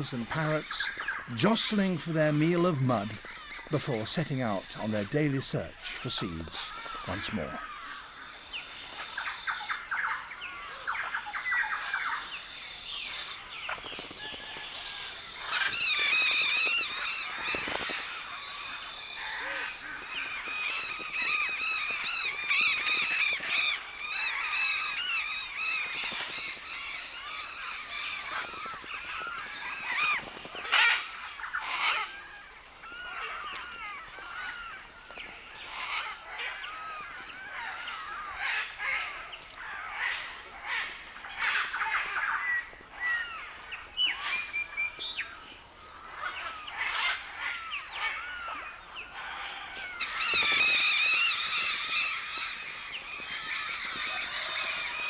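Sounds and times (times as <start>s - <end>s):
sharp loud bird call: 0.0s - 8.0s.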